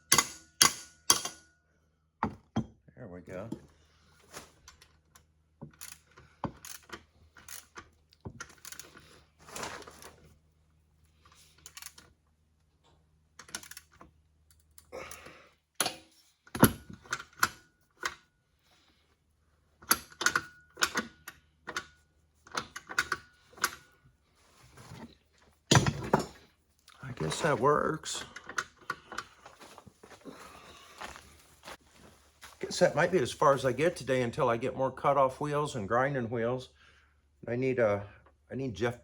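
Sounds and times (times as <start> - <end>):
metal tools clinking and clunking: 15.8 - 18.2, 24.6 - 30.2.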